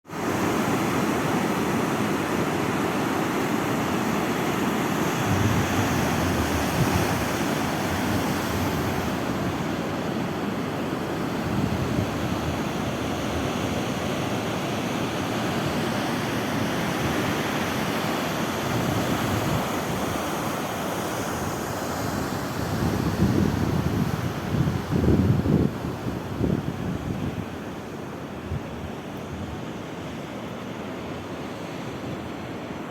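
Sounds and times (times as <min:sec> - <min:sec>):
sea waves washing onto shore: 0:00.1 - 0:32.9
wind buffeting microphone: 0:05.1 - 0:10.0, 0:11.0 - 0:14.1, 0:22.1 - 0:29.8.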